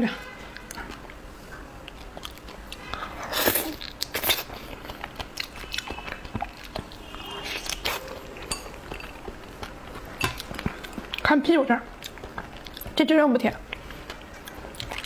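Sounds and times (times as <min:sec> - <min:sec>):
biting and chewing fruit: 0:00.5 - 0:13.0, 0:13.6 - 0:15.0.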